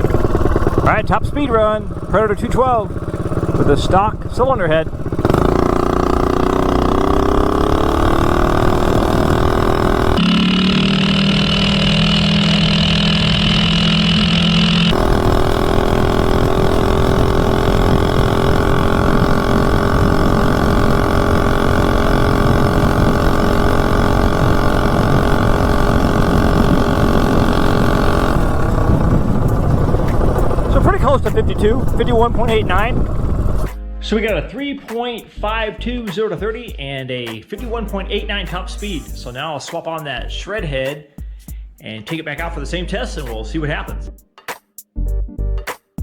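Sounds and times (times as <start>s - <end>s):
mini bike engine at full throttle: 0.0s - 33.7s.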